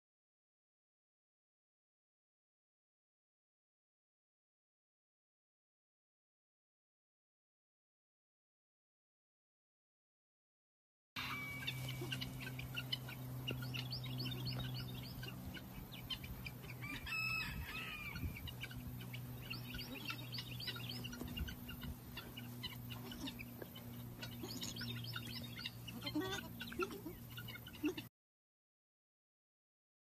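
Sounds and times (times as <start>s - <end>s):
birds chirping: 11.2s - 28.1s
steady low hum: 11.2s - 28.1s.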